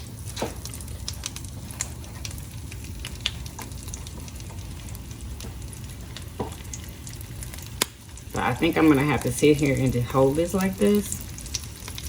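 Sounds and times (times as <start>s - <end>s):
bread sizzling in a frying pan: 0.0s - 12.0s.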